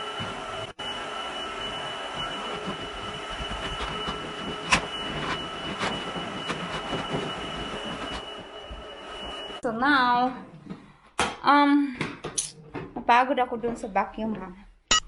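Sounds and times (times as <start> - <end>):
vacuum cleaner whining: 0.0 - 10.7.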